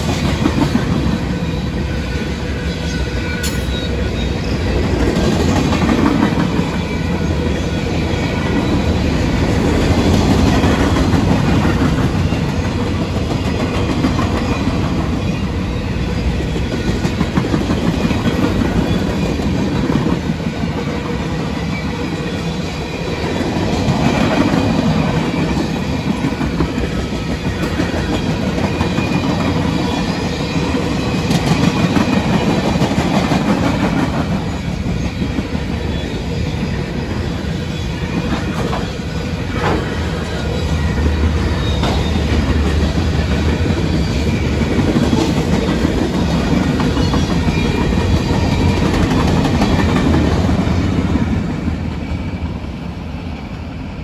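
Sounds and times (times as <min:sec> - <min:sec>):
clickety-clack over rail joints: 0:00.0 - 0:01.4, 0:03.4 - 0:36.3, 0:37.7 - 0:52.1
freight train rolling past: 0:00.0 - 0:54.0.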